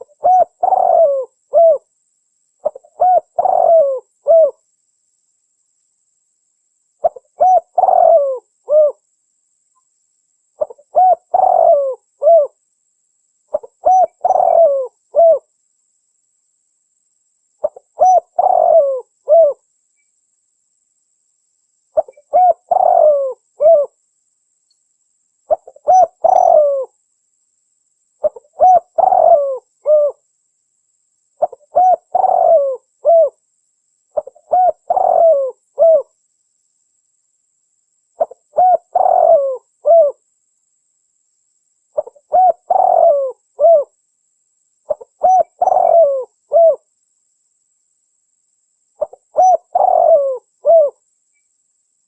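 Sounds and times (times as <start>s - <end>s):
dove cooing: 0.0s - 1.9s, 2.6s - 4.6s, 7.0s - 9.0s, 10.6s - 12.6s, 13.5s - 15.5s, 17.6s - 19.6s, 22.0s - 24.0s, 25.5s - 26.9s, 28.2s - 30.2s, 31.4s - 33.4s, 34.2s - 36.1s, 38.2s - 40.2s, 42.0s - 43.9s, 44.9s - 46.9s, 49.0s - 51.0s.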